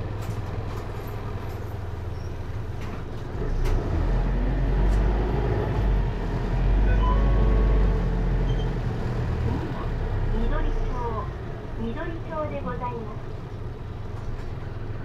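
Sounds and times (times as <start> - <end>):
bus engine rumbling: 0.0 - 15.0.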